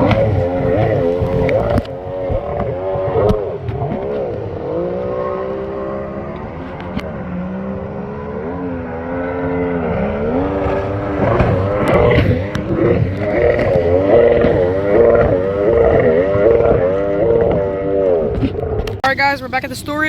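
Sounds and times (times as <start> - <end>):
watercraft engine revving: 0.0 - 20.0.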